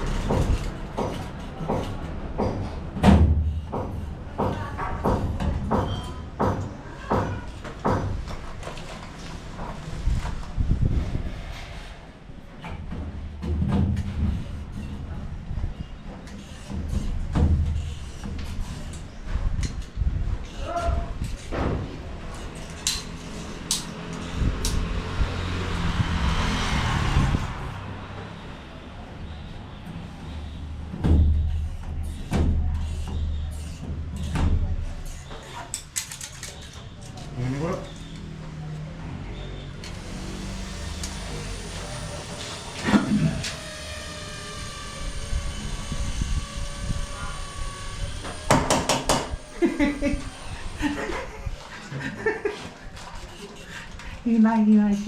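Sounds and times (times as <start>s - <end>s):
building work knocks and thumps: 0.0s - 23.4s, 29.2s - 35.5s.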